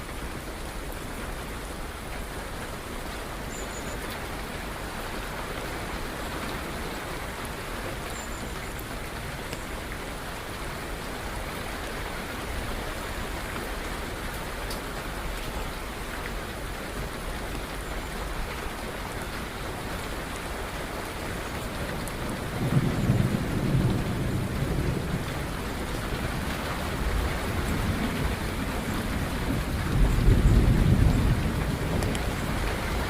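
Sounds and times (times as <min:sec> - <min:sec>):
steady rain: 0:00.0 - 0:33.0
thunder rumbling: 0:22.3 - 0:33.0.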